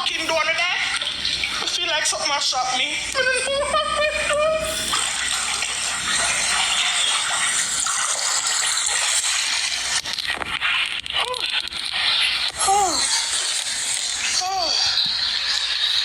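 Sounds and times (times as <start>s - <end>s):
water gushing: 0.0s - 16.0s.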